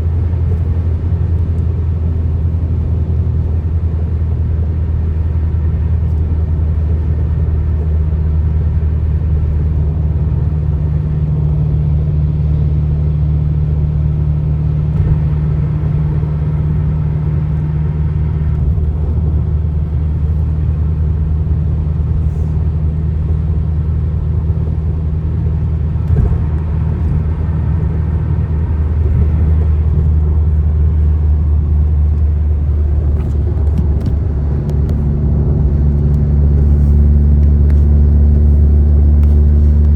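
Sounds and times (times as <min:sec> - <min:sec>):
car driving on highway: 0:00.0 - 0:39.9.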